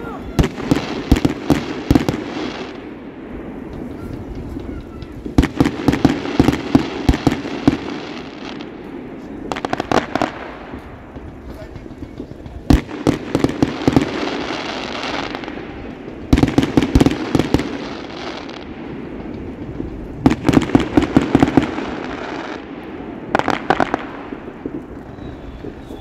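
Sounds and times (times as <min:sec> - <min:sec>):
fireworks rapid bangs: 0:00.0 - 0:26.0.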